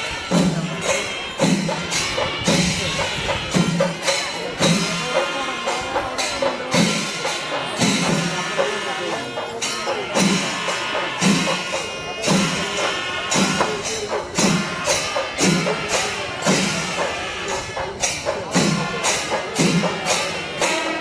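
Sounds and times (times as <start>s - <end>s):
drums playing loud: 0.0s - 21.0s
hand cymbals crashing: 0.0s - 21.0s.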